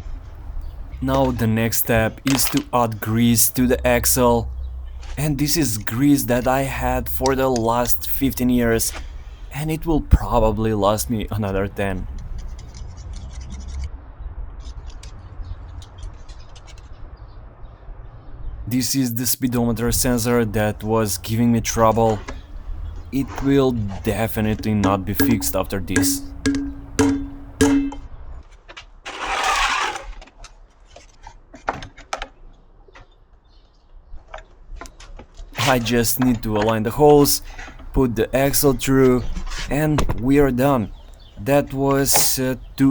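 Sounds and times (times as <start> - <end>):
steady low hum: 0.0 - 12.7, 19.5 - 28.0
metal parts clicking and tapping: 24.2 - 28.0
scraping and rubbing with clicks: 29.1 - 30.3.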